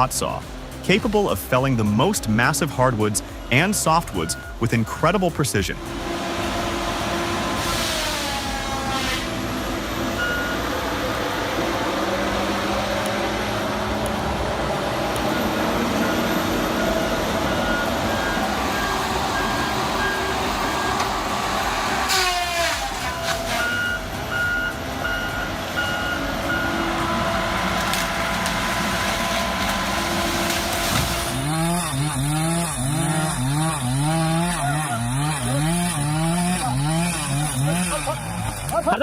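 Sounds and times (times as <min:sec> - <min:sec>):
heavy machinery engine running: 0:00.0 - 0:39.0
reversing warning beeper: 0:03.5 - 0:04.8, 0:10.2 - 0:10.9, 0:15.3 - 0:22.4, 0:23.4 - 0:28.3
falling whine: 0:05.7 - 0:39.0.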